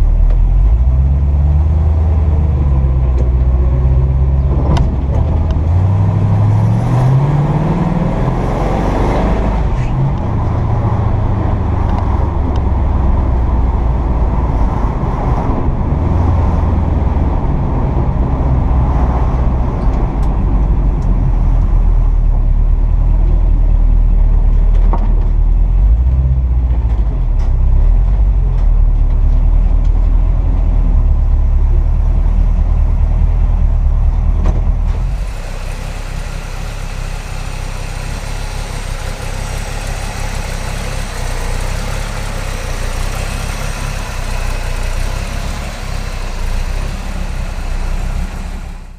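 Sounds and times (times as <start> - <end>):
road noise: 0.0 - 48.9
truck engine accelerating: 0.0 - 48.9.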